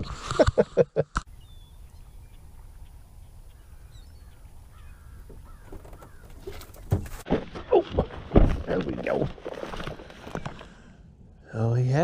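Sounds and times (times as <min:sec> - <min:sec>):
low outdoor background noise: 0:00.4 - 0:12.0
distant bird calls: 0:01.2 - 0:08.8.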